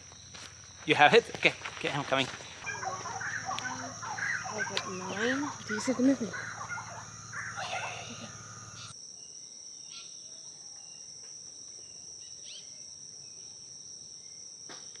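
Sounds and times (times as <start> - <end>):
faint bird chirps: 2.7 - 8.9
high-pitched insect chorus: 2.7 - 8.9.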